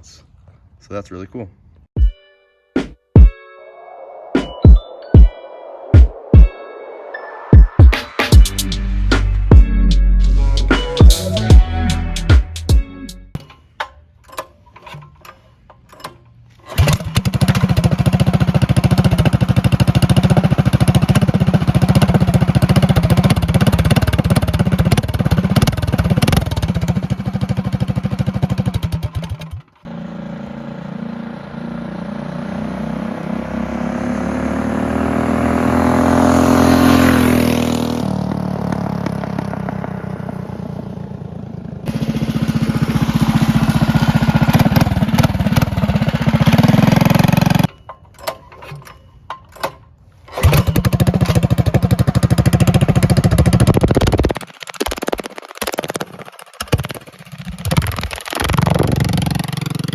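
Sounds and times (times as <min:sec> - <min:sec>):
minibike engine running: 0:15.9 - 0:48.9, 0:50.3 - 0:59.9
minibike passing by: 0:16.6 - 0:47.7.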